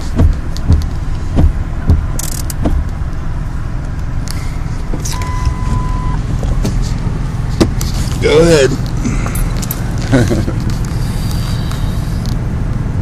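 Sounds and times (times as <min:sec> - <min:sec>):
truck cab rumble: 0:00.0 - 0:13.0
knocks and rattle: 0:00.1 - 0:03.0, 0:06.3 - 0:08.0
single beep: 0:05.0 - 0:06.2.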